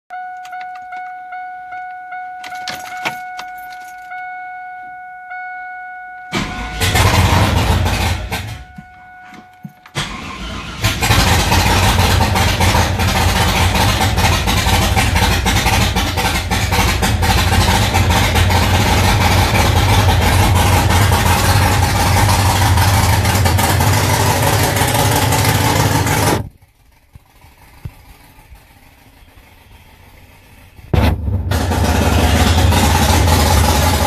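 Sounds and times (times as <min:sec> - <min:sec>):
engine cranking: 0:02.4 - 0:04.2, 0:06.3 - 0:34.0
engine idling loud: 0:06.3 - 0:08.8, 0:10.0 - 0:34.0.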